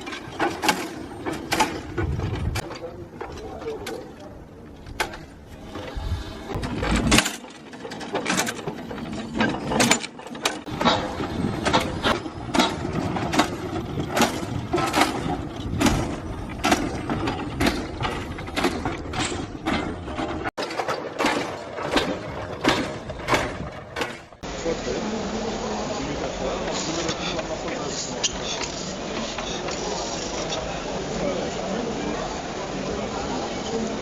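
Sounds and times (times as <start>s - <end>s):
steam locomotive rumble: 0.0s - 20.5s
steam locomotive chuffing: 0.0s - 34.0s.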